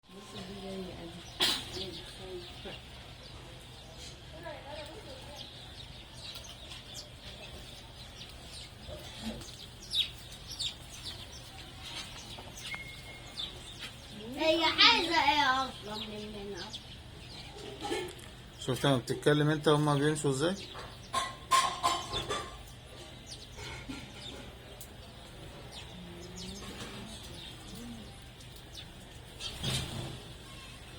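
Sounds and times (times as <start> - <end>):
sparrows chirping: 0.0 - 30.9
doves cooing: 19.7 - 30.9.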